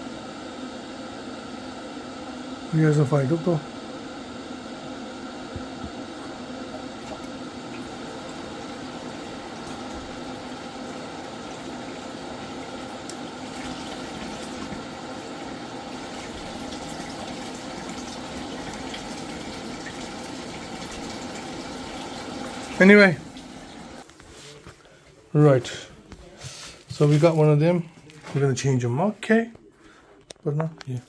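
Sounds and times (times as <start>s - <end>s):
water rushing through pipes: 6.8s - 24.0s.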